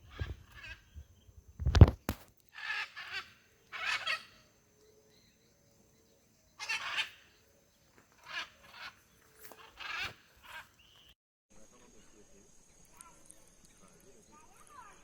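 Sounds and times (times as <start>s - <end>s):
birds harsh raspy calls: 0.0s - 1.2s, 2.5s - 11.2s.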